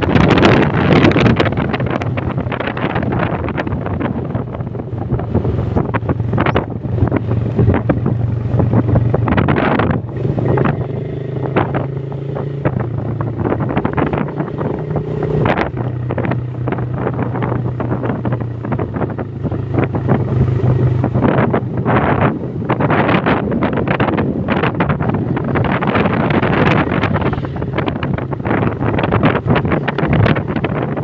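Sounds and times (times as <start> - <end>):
motorcycle engine running: 0.0 - 31.0
wind buffeting microphone: 0.0 - 31.0.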